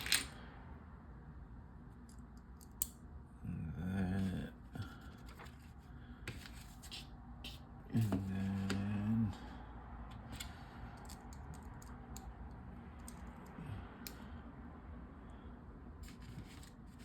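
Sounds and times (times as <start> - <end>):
man humming: 3.4 - 5.0, 7.9 - 9.5.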